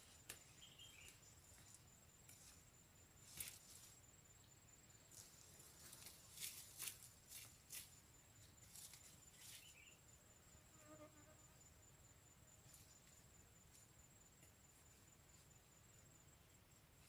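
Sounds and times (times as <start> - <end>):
high insect trill: 0.0 - 17.0
soft rustles and crackles: 5.1 - 8.0.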